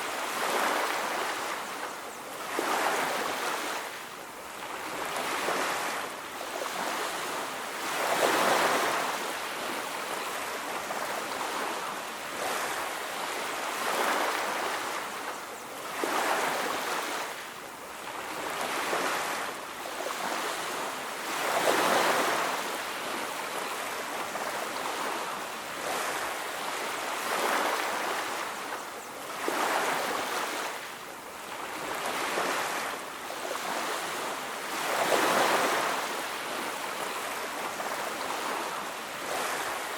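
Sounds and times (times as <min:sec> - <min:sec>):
ocean waves breaking: 0:31.5 - 0:39.9.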